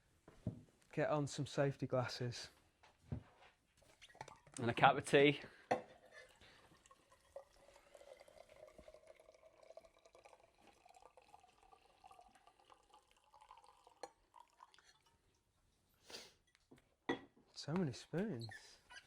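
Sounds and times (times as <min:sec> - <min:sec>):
tea pouring into a mug: 0:03.9 - 0:15.5.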